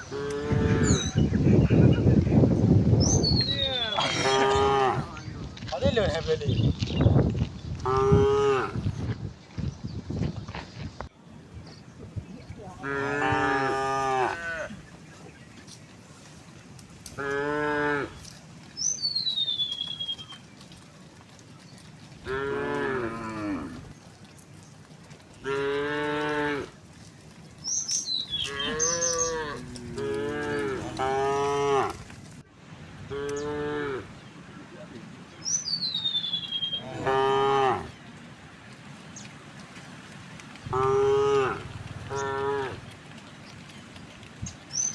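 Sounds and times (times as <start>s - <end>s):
cows mooing: 0.0s - 1.2s, 3.9s - 5.2s, 7.8s - 8.8s, 12.8s - 14.9s, 17.2s - 18.3s, 22.2s - 24.0s, 25.4s - 26.8s, 28.3s - 32.1s, 33.1s - 34.1s, 36.7s - 38.0s, 40.7s - 42.9s.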